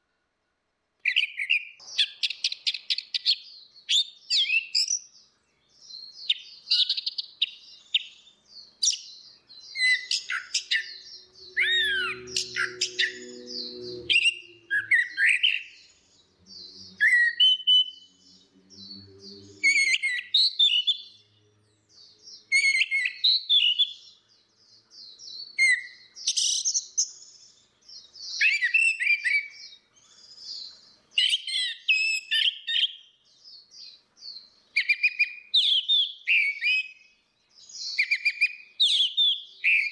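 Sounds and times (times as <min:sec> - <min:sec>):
thrushes singing: 0:01.1 - 0:39.9
low humming tone: 0:11.2 - 0:14.7.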